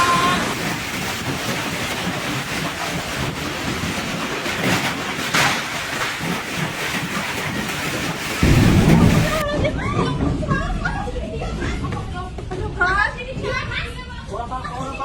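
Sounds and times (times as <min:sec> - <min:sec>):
heavy rain and hail: 0:00.0 - 0:09.4
strong wind: 0:08.4 - 0:10.4.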